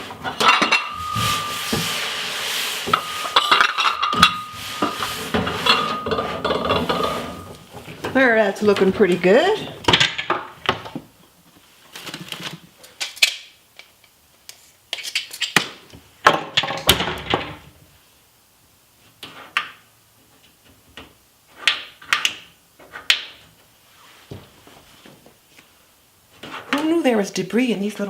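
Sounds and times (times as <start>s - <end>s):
scrubbing scrapes: 0.6s - 7.6s.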